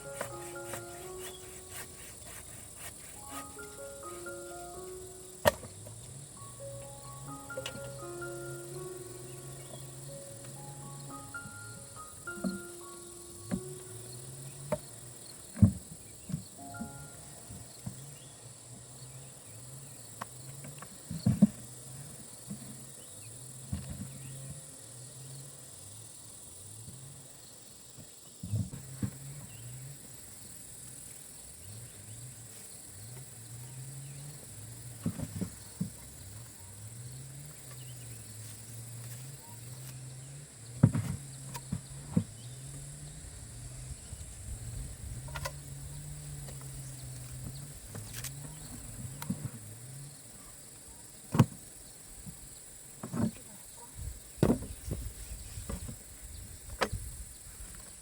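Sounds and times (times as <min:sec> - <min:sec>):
crickets and insects chirping: 0:00.0 - 0:58.0.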